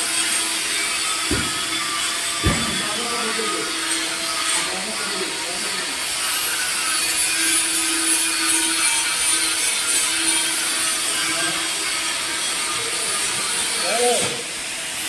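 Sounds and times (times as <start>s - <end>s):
welding arc hiss and crackle: 0.0s - 15.0s.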